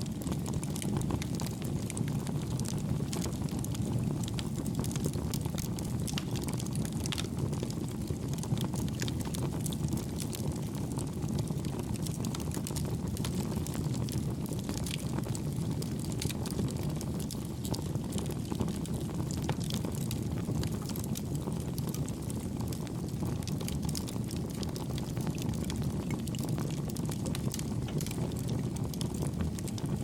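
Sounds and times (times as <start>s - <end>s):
campfire flames rushing: 0.0s - 30.0s
fire crackling and popping: 0.0s - 30.0s.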